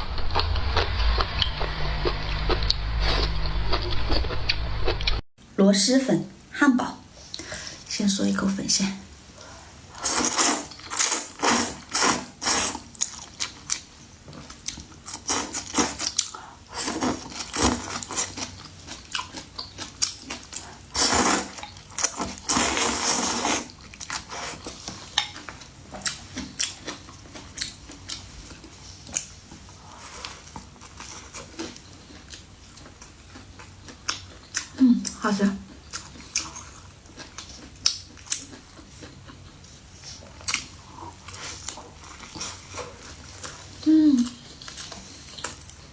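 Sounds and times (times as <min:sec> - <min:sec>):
noodle slurping: 0:10.0 - 0:12.9, 0:20.3 - 0:24.8
chewing with short clicks: 0:31.6 - 0:42.5.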